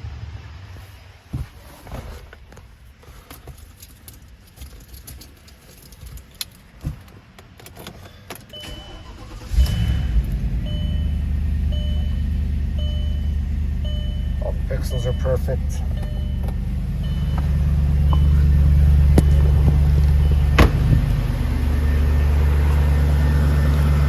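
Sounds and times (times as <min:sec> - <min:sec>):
keys jangling: 0:03.3 - 0:06.7
car engine starting and idling: 0:06.4 - 0:24.0
dashboard chime: 0:08.6 - 0:20.7.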